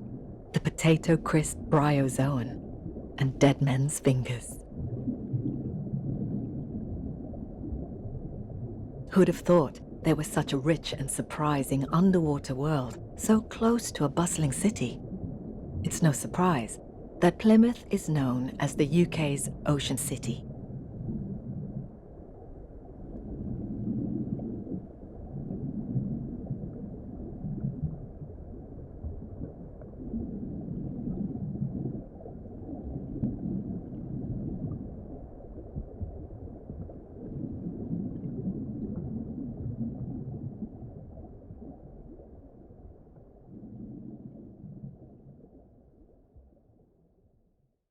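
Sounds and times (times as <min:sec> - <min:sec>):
low underwater rumble: 0:00.0 - 0:00.5, 0:01.3 - 0:03.2, 0:04.6 - 0:09.1, 0:14.5 - 0:15.9, 0:19.4 - 0:47.8.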